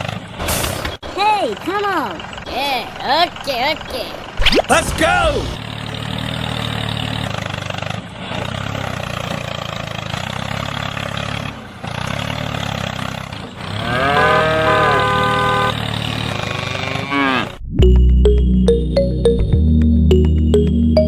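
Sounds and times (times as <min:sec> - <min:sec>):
tractor engine idling: 0:00.0 - 0:13.8.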